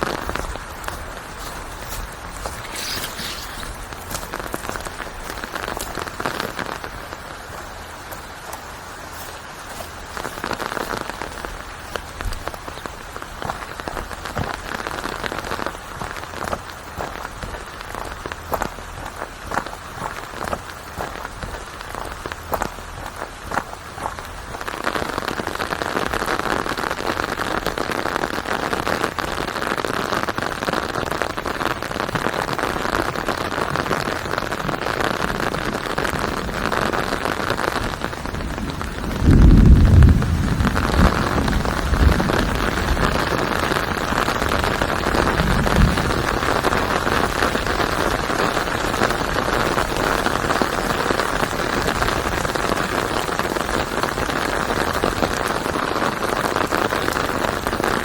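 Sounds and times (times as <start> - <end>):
heavy rain: 0.0 - 58.0
thunder rumbling: 32.8 - 58.0.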